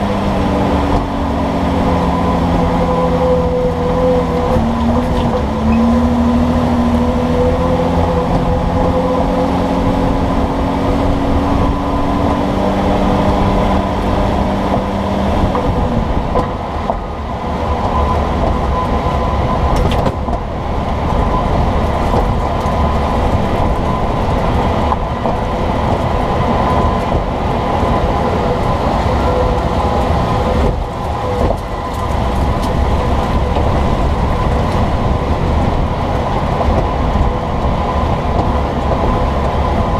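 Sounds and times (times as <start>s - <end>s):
vehicle road rumble: 0.0s - 39.9s.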